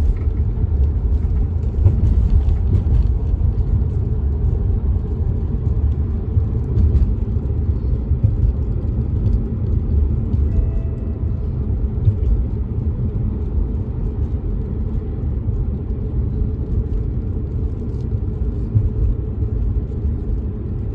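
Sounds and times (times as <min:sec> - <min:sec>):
car road and engine rumble: 0:00.0 - 0:20.9
raindrops ticking on car: 0:00.0 - 0:20.9
brief faint tone: 0:10.5 - 0:11.4.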